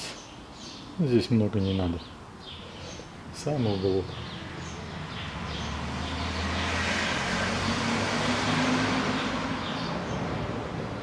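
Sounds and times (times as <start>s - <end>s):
motor vehicle passing by: 4.1s - 11.0s.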